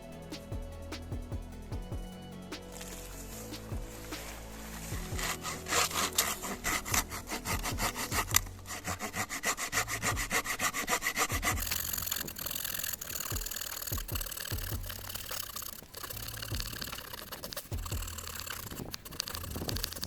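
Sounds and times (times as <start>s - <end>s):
hand saw cutting branch: 5.2s - 11.6s.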